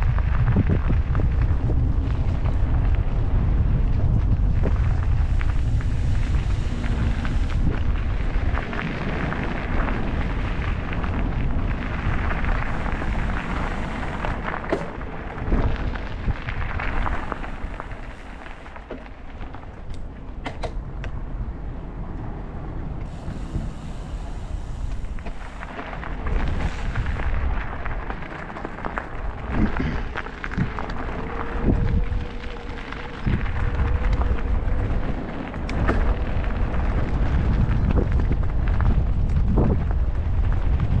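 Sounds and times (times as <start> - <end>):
tyre and road noise: 0.0 - 41.0
wind buffeting microphone: 0.0 - 41.0
steady hum: 9.3 - 30.0
bike clicks and rattles: 11.6 - 27.5, 28.1 - 30.4
small rattling clicks: 17.9 - 21.4.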